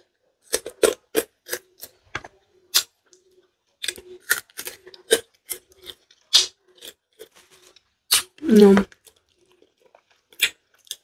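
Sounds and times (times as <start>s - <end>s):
crunchy chewing: 2.7s - 11.0s.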